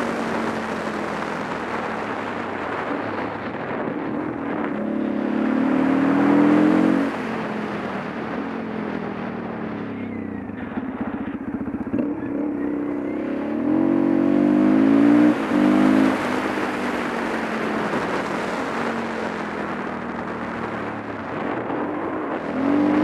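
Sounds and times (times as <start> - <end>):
motorcycle engine revving: 0.0 - 23.0
wind rush over camera: 0.4 - 5.6.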